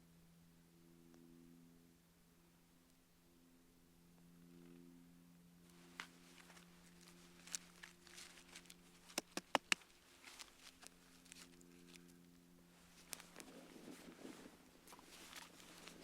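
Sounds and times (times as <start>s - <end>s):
faint low hum: 0.0s - 16.0s
campfire crackling and popping: 6.0s - 11.5s.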